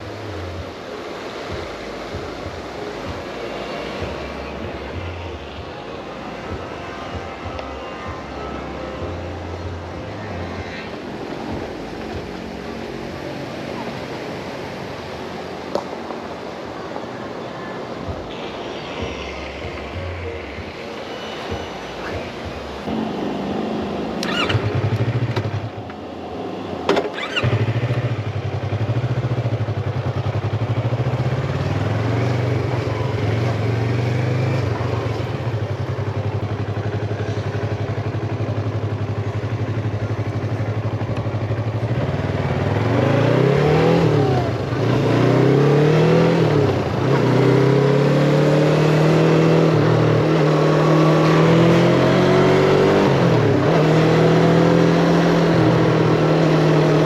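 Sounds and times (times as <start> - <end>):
motorcycle engine revving: 22.9 - 26.0, 26.9 - 57.0.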